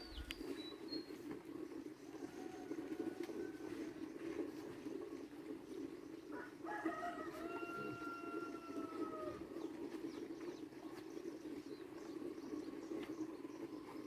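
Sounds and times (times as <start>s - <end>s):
distant rooster crowing: 2.1s - 4.0s, 6.3s - 9.6s.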